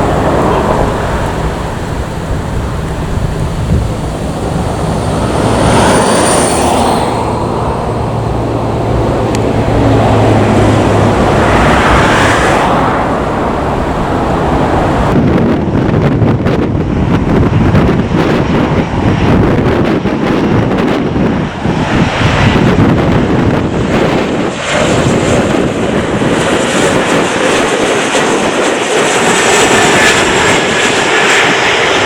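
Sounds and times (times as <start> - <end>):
high thin whine: 0.0 - 15.0
jet engines running: 0.0 - 32.0
wind buffeting microphone: 0.0 - 32.0.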